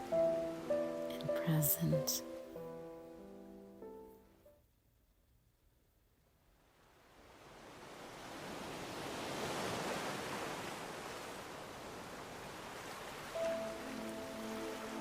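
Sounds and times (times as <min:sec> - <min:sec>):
ocean wave washing in: 0:06.7 - 0:15.0.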